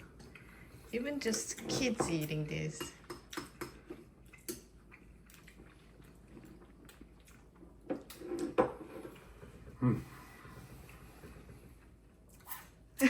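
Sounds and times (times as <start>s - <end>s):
person chewing noodles: 3.0s - 12.9s.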